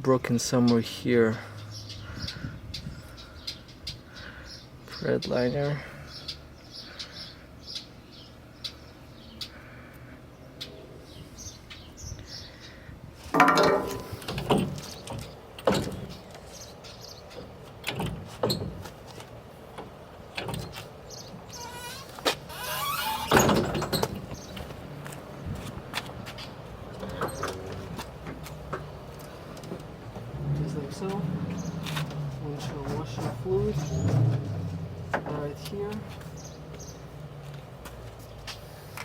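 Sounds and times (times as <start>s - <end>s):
knocks and clunks on truck body: 13.3s - 16.4s, 17.4s - 19.0s, 23.2s - 24.8s
metal creak: 13.4s - 16.2s, 21.4s - 24.4s, 26.9s - 27.8s.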